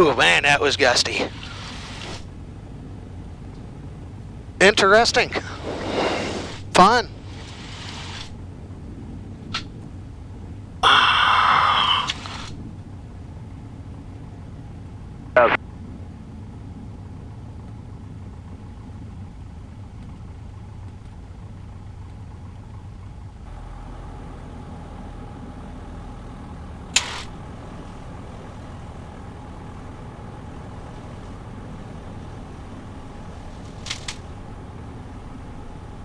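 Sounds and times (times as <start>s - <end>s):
aircraft engine humming: 0.0s - 36.0s
sharp clicks: 27.0s - 27.4s, 33.8s - 34.3s.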